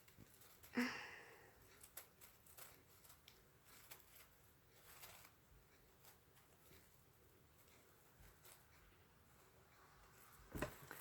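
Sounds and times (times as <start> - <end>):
small objects clicking and rustling: 0.0 - 5.4.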